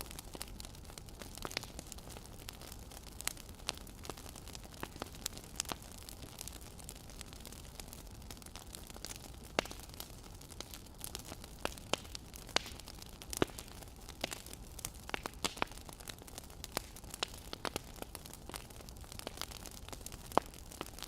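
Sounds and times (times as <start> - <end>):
faint steady hiss: 0.0 - 21.0
wood fire crackling: 0.0 - 21.0.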